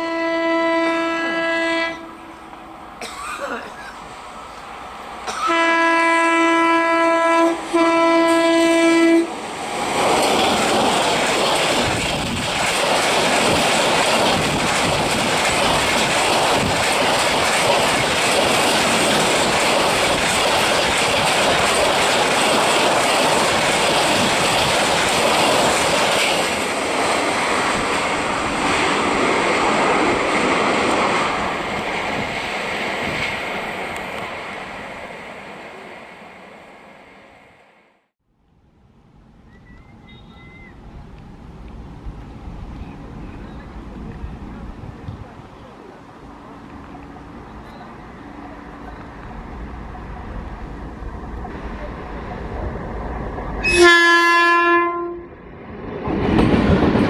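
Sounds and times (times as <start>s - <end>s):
train horn blasts: 0.0s - 2.8s, 5.3s - 9.4s, 53.6s - 55.4s
fast train passing: 0.0s - 57.0s
wheels rattling on rails: 9.3s - 37.2s, 55.5s - 57.0s.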